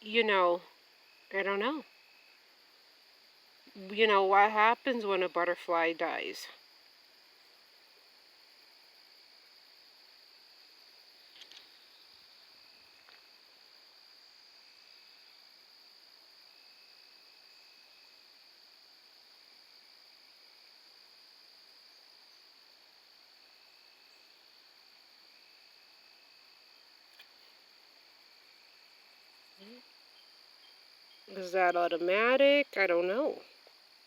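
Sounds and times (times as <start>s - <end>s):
crickets chirping: 0.0s - 34.0s
low insect trill: 0.0s - 34.0s.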